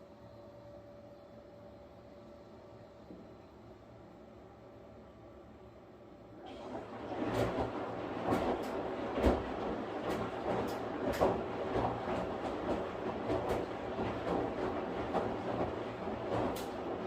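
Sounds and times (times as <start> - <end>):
washing machine hum: 0.0 - 17.0
washing machine knocks and clicks: 6.6 - 17.0.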